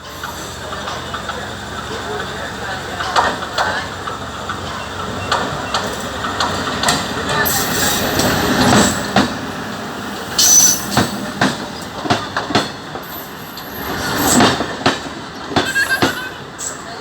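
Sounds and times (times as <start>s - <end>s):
train wheels knocking over rail joints: 0.1s - 17.0s
high-pitched wheel squeals: 10.4s - 11.1s, 15.6s - 16.8s.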